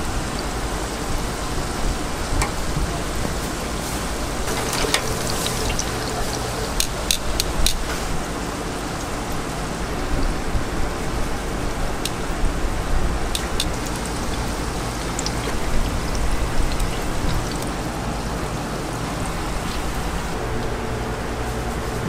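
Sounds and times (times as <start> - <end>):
dough sizzling in hot oil: 0.0 - 20.7
sharp clicks: 13.3 - 13.8.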